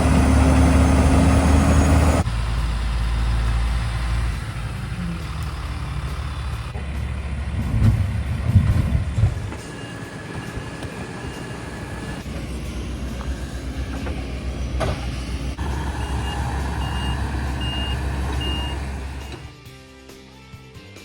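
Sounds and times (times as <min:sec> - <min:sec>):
diesel engine rumbling: 0:00.0 - 0:19.5
reversing alarm beeping: 0:09.2 - 0:19.5.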